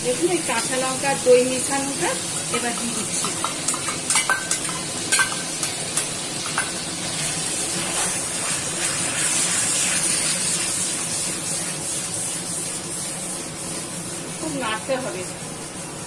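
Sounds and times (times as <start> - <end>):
food sizzling in hot oil: 0.0 - 16.0
metal taps on pan: 2.6 - 6.8.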